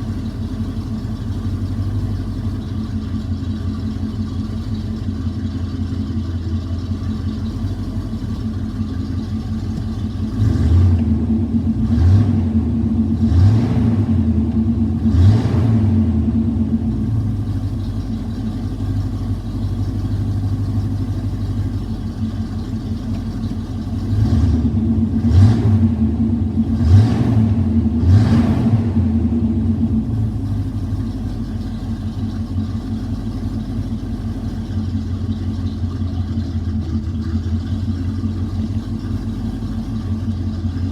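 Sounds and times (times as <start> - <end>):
car engine idling: 0.0 - 40.9
engine revving: 9.8 - 17.7, 24.0 - 31.3.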